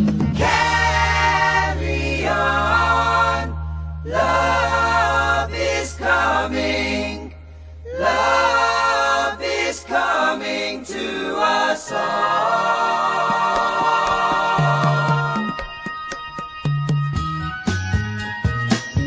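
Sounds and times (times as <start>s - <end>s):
choir singing: 0.4s - 15.6s.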